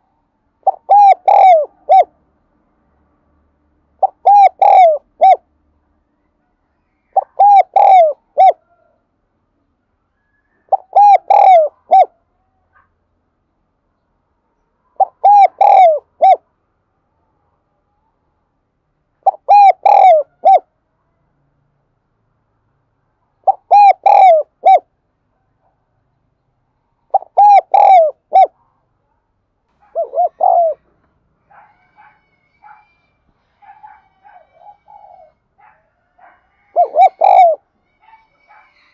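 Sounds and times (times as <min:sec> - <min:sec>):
dove cooing: 0:00.6 - 0:02.1, 0:04.0 - 0:05.4, 0:07.1 - 0:08.8, 0:10.6 - 0:12.2, 0:15.0 - 0:16.4, 0:19.2 - 0:20.7, 0:23.4 - 0:24.9, 0:27.1 - 0:28.6, 0:29.8 - 0:33.0, 0:33.6 - 0:38.9.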